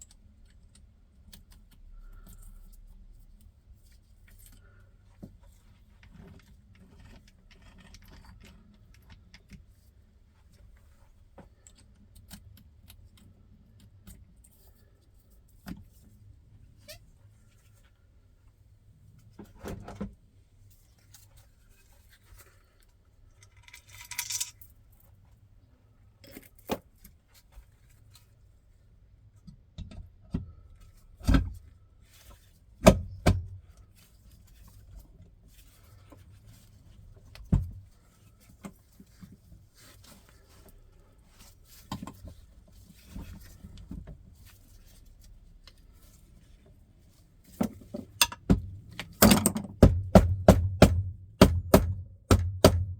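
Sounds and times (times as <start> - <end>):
hand tools and metal parts clinking: 23.4 - 24.7, 47.7 - 49.8.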